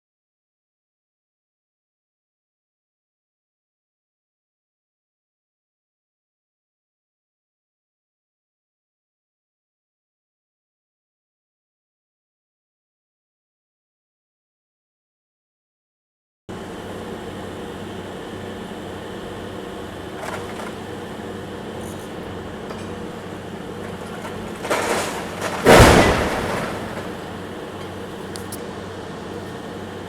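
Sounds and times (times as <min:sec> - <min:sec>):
excavator diesel engine running: 0:16.5 - 0:30.0
brick rubble crashing down: 0:20.1 - 0:21.1, 0:22.5 - 0:27.9.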